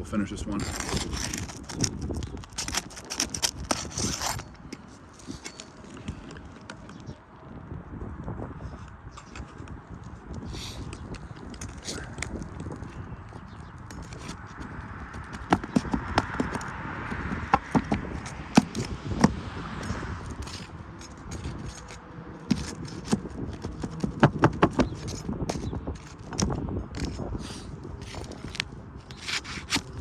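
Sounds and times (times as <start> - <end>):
putty knife prying shingles: 0.6 - 5.6, 11.6 - 12.4, 13.9 - 14.4, 15.1 - 30.0.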